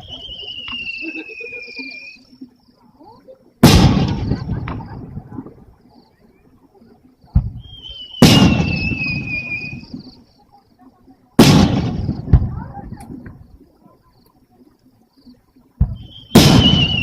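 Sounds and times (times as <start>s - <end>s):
high whistle sliding down: 0.0s - 2.3s
sharp firework crack: 3.6s - 5.0s, 7.4s - 10.0s, 11.4s - 13.1s, 15.8s - 17.0s
fireworks booming: 3.6s - 5.6s, 7.3s - 10.2s, 11.4s - 13.5s, 15.8s - 17.0s.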